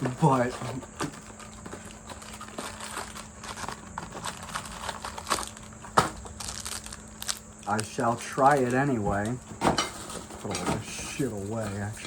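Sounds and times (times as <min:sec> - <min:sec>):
snack packaging crackling: 0:00.0 - 0:09.4.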